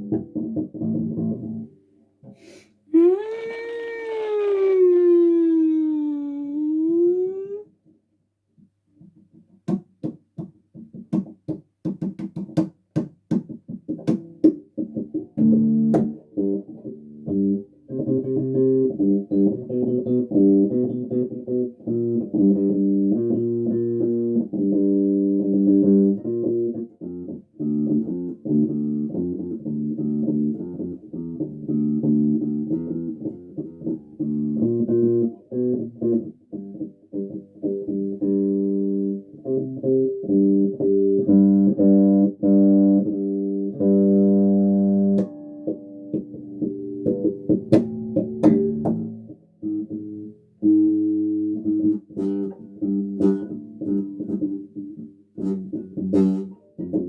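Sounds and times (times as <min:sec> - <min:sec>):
electric bass guitar: 0:00.0 - 0:01.8, 0:13.9 - 0:57.0.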